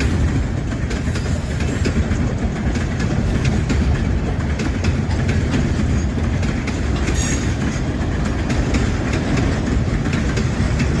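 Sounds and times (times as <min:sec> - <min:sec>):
train rumble: 0:00.0 - 0:11.0
train wheels clacking over rail joints: 0:00.0 - 0:11.0.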